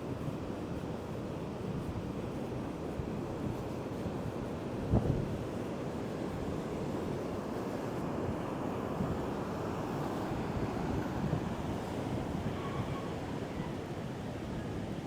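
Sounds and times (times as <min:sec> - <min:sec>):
wind buffeting microphone: 0:04.8 - 0:05.6.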